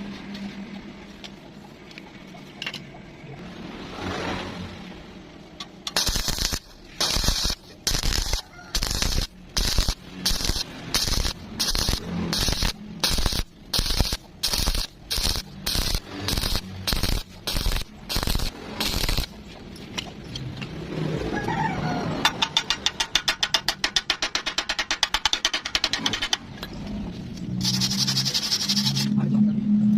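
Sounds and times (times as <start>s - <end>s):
welding arc crackling: 5.8s - 19.5s, 27.6s - 29.1s.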